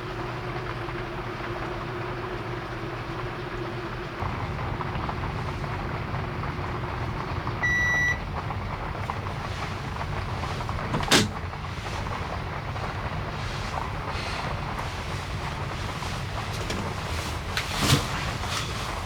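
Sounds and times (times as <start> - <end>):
short electronic beep: 7.6 - 8.2.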